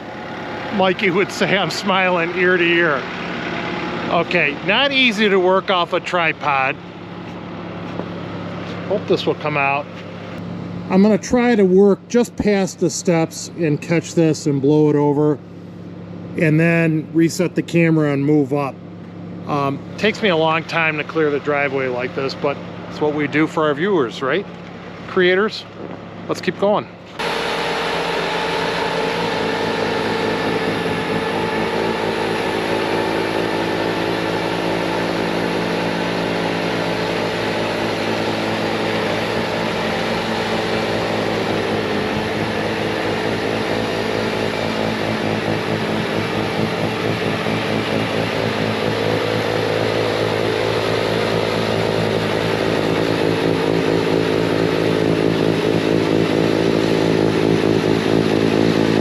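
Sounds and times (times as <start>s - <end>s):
snowblower blowing snow: 0.0s - 5.4s, 27.2s - 59.0s
loader engine at full throttle: 0.0s - 59.0s.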